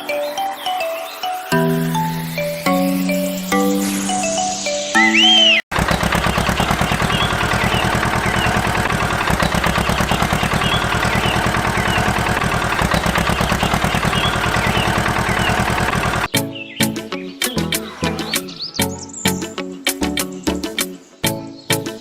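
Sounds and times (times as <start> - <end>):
birds chirping: 0.0 - 22.0
small engine idling: 5.7 - 16.3.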